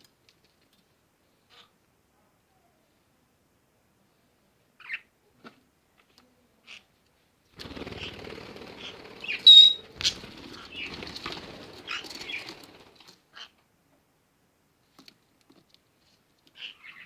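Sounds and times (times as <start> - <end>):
parrot flapping wings: 7.5 - 13.2
parrot high chirp: 9.4 - 9.8.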